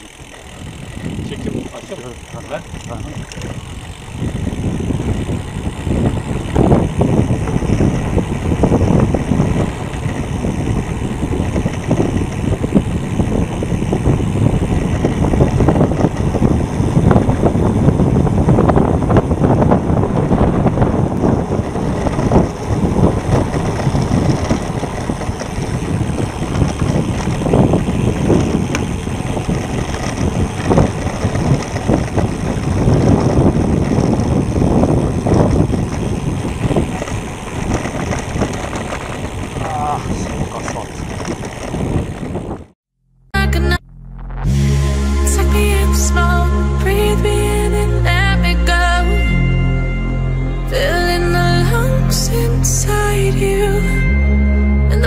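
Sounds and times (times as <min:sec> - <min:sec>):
wind buffeting microphone: 0:00.0 - 0:42.8
tyres on coarse asphalt: 0:00.0 - 0:43.2.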